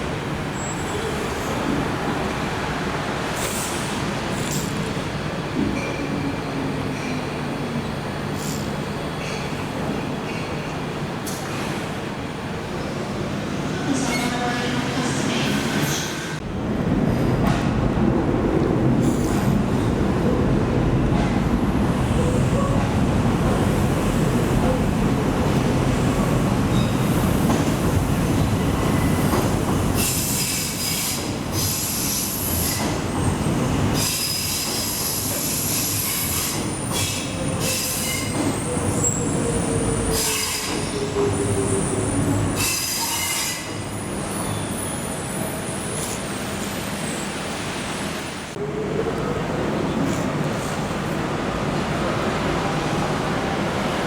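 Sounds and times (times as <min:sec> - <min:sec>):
train rumbling: 0:00.0 - 0:54.0
train wheels squealing: 0:28.7 - 0:47.4.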